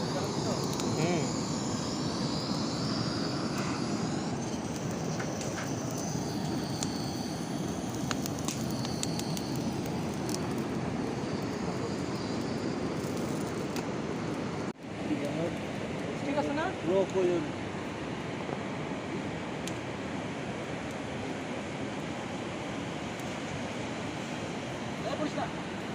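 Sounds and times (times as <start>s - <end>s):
faint crackles: 0.0s - 14.0s
steady rushing outdoor noise: 0.0s - 25.9s.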